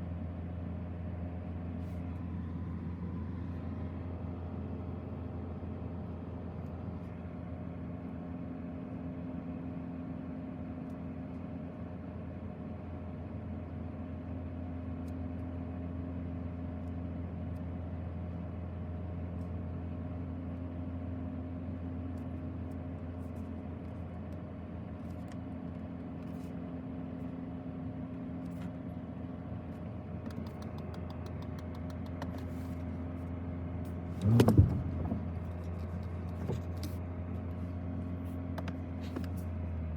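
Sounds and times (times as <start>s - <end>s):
car engine idling: 22.2s - 39.9s
faint clicks: 30.2s - 32.5s.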